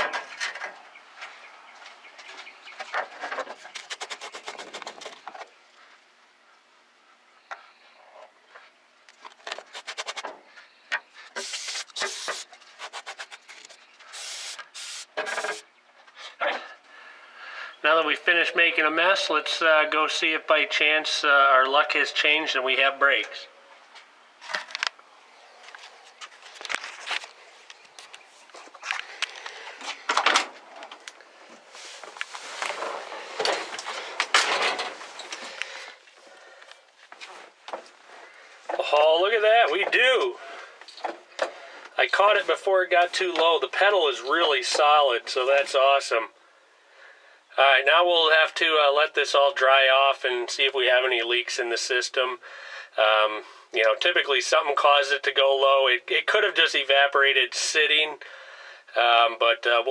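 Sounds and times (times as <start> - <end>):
aerosol spray hissing: 11.4 - 12.5, 14.1 - 15.6.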